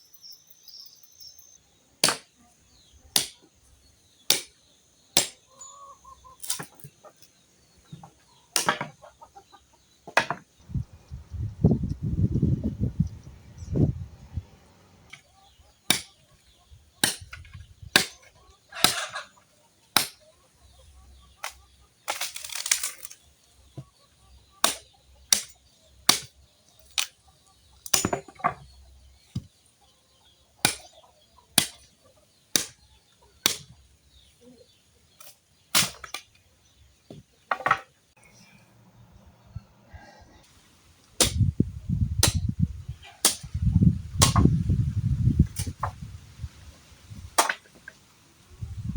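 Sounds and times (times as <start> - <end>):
axe chopping firewood: 2.0 - 2.3, 3.2 - 3.5, 4.3 - 4.6, 5.2 - 5.4, 8.6 - 9.0, 15.9 - 16.2, 17.0 - 19.2, 19.9 - 20.2, 24.6 - 27.2, 27.8 - 28.7, 30.6 - 30.9, 31.5 - 31.9, 32.5 - 32.8, 33.4 - 33.8, 35.2 - 36.4, 41.2 - 42.6, 43.2 - 44.6, 47.3 - 47.8.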